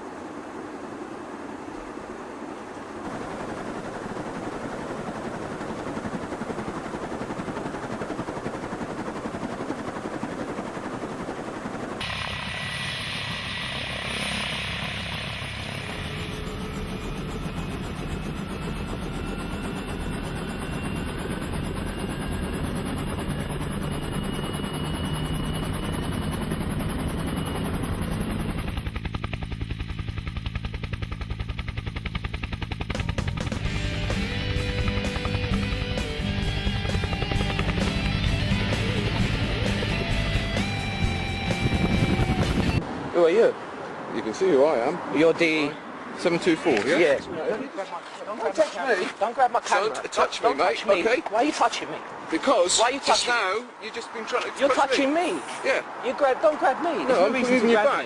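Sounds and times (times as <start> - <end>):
helicopter rotor beating: 0.2 - 43.6, 44.2 - 58.0
turbine engine: 3.0 - 43.0.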